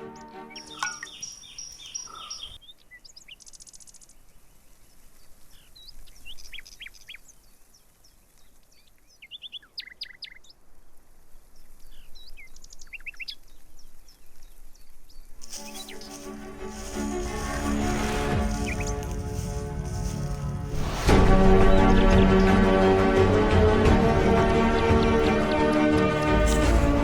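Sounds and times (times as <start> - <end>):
birds chirping: 0.0 - 27.0
downward whistled bird notes: 0.4 - 2.6
buzzy bird trill: 0.5 - 2.6, 15.4 - 20.7.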